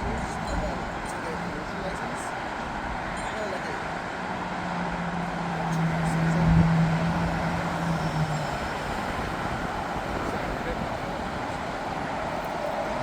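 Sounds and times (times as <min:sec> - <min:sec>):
heavy vehicle engine drone: 0:00.0 - 0:13.0
traffic noise: 0:00.0 - 0:13.0.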